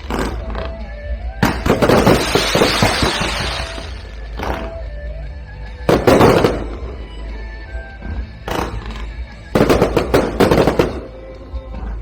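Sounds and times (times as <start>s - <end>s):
faint music: 0.0s - 12.0s
fireworks bangs and crackling: 1.4s - 4.9s, 5.9s - 7.5s, 8.4s - 11.9s.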